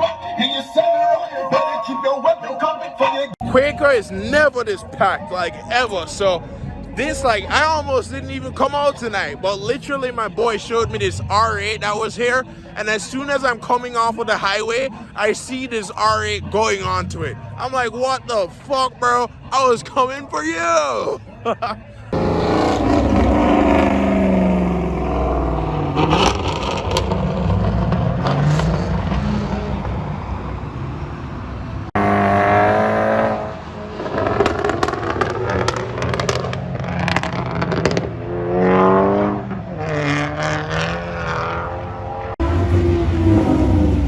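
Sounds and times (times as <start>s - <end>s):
car engines revving: 3.4s - 20.4s, 21.2s - 44.0s
exhaust cracks: 22.2s - 30.7s, 31.9s - 41.3s.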